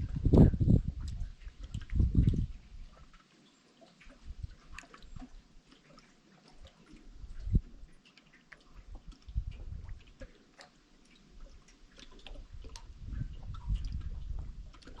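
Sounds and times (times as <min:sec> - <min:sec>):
low rumble: 0:00.0 - 0:02.6
water dripping and trickling: 0:00.0 - 0:15.0.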